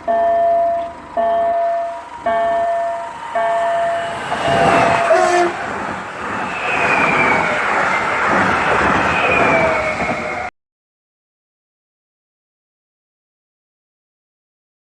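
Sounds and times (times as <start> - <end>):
level crossing pulsed tone: 0.0 - 5.4
train rail and wheel noise: 0.0 - 10.5.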